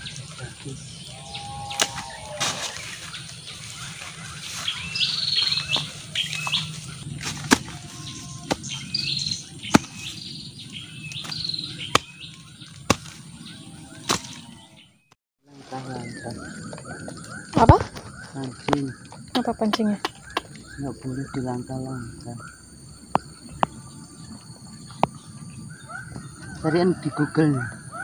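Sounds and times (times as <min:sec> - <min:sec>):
bird chirping: 0:00.0 - 0:28.0
hand tool knocking into soil: 0:09.7 - 0:10.1.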